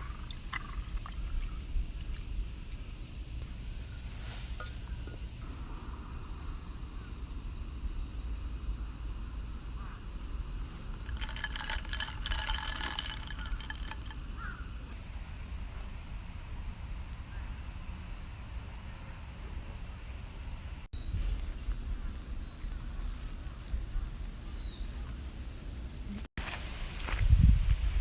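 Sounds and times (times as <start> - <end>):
high-pitched insect chorus: 0.0 - 26.2
crow cawing: 14.4 - 14.6.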